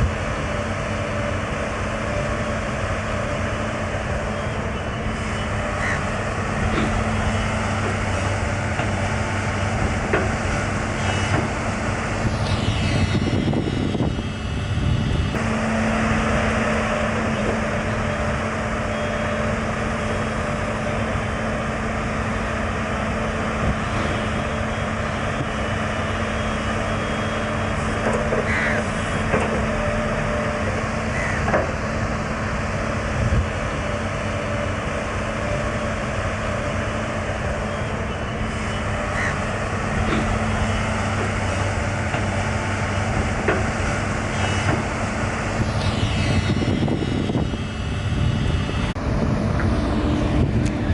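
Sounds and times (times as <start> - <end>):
excavator diesel engine running: 0.0 - 50.9
machine squeaks and knocks: 11.0 - 11.6, 12.3 - 14.2, 44.3 - 44.9, 45.8 - 47.6.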